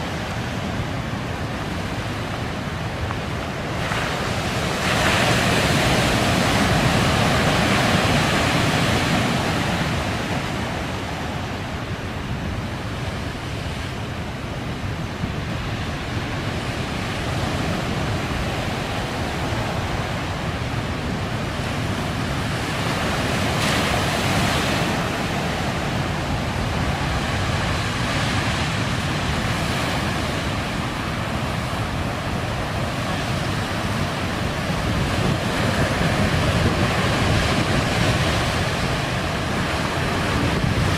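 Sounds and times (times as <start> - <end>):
heavy surf breaking: 0.0 - 40.9
wind on microphone: 0.0 - 40.9.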